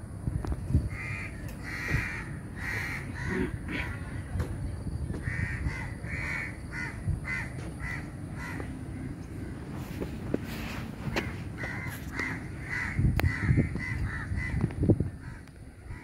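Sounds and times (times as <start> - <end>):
bird giving harsh calls: 0.9 - 4.2, 5.2 - 9.2, 11.0 - 14.6.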